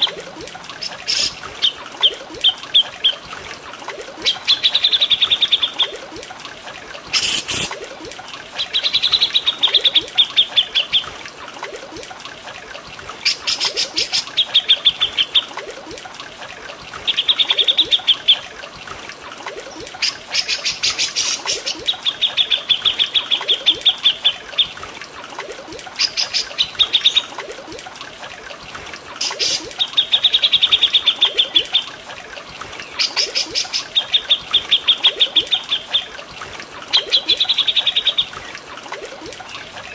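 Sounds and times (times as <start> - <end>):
trickling water: 0.0 - 39.9
songbirds trilling: 0.8 - 3.3.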